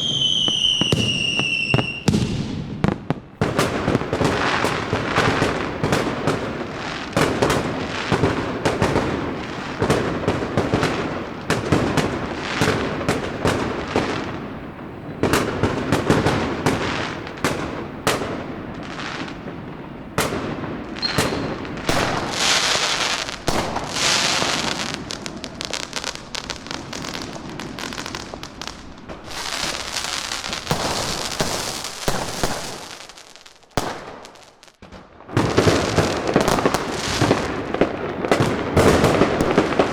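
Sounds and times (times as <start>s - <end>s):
fireworks bangs and cracks: 0.0s - 39.9s
fireworks sizzling crackle: 20.7s - 39.9s.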